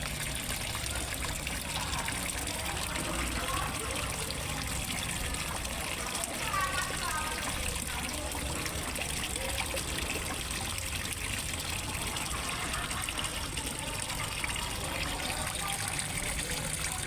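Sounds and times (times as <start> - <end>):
small waterfall splashing into pond: 0.0 - 17.0.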